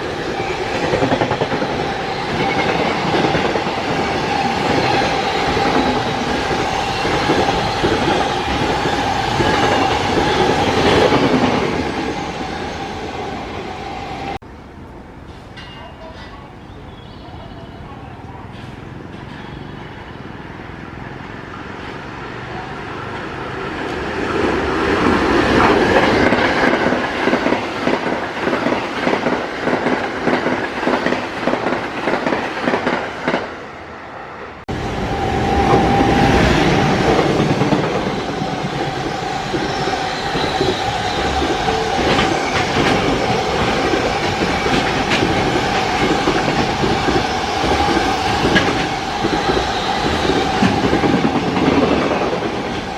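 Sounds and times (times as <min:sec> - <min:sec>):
train high whine: 0:00.0 - 0:15.8, 0:21.3 - 0:52.9
train wheels clattering: 0:35.2 - 0:52.9.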